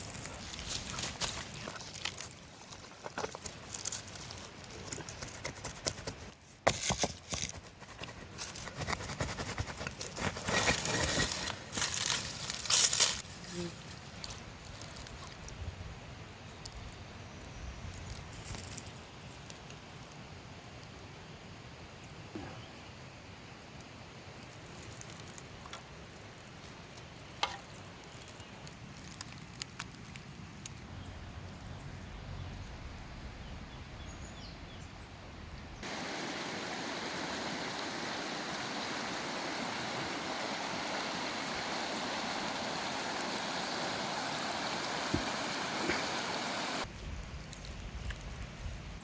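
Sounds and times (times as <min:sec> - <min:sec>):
flowing stream: 0:00.0 - 0:06.3, 0:35.8 - 0:46.9.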